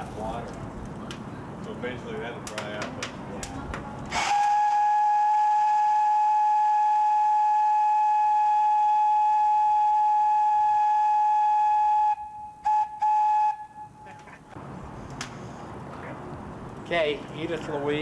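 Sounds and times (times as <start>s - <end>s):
steam whistle long note: 4.2s - 14.1s.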